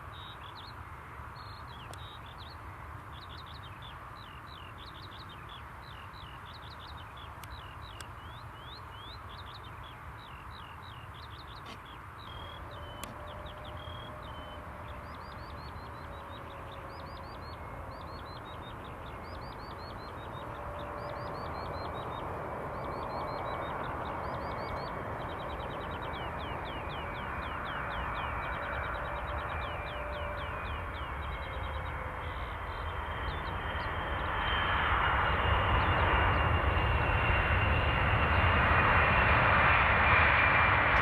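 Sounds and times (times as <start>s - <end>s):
birds chirping: 0.1s - 34.6s
steady rushing noise: 40.2s - 41.0s.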